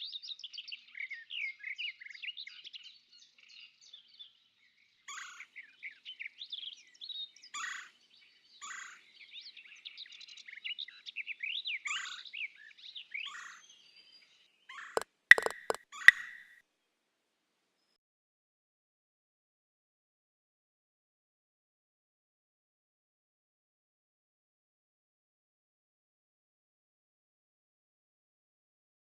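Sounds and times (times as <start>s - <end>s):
songbirds singing: 15.3s - 16.5s.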